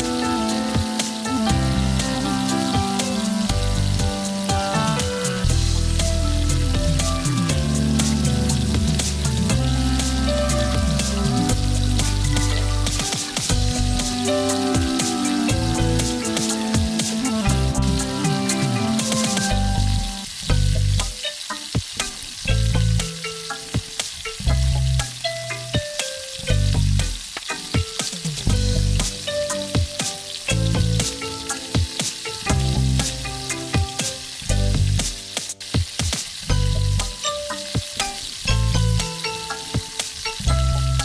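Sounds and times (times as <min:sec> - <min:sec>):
background music with bass beat: 0:00.0 - 0:41.0
curry sizzling in a pan: 0:00.0 - 0:41.0.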